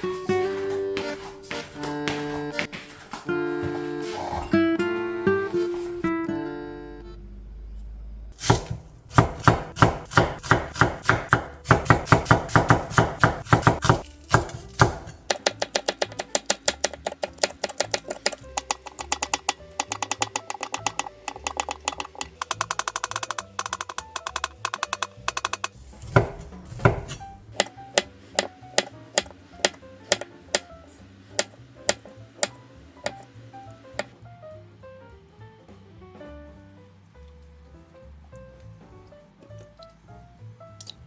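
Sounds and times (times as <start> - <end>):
knife chopping on cutting board: 8.4 - 30.6, 31.4 - 33.2.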